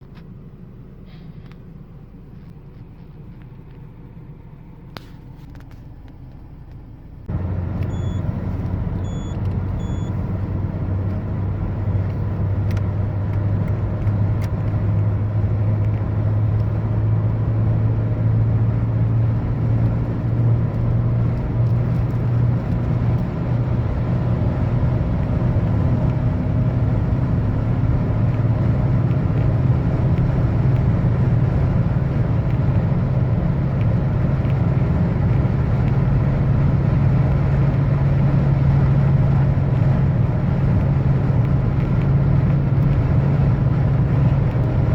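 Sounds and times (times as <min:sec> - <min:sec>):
car engine revving: 0:03.3 - 0:44.9
short electronic beeps: 0:07.8 - 0:08.4, 0:09.0 - 0:10.2.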